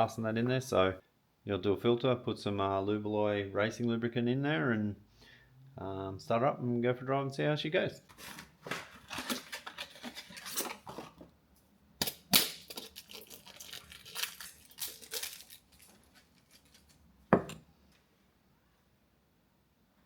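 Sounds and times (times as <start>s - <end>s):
handling tools and parts: 8.0s - 11.3s, 12.2s - 17.7s.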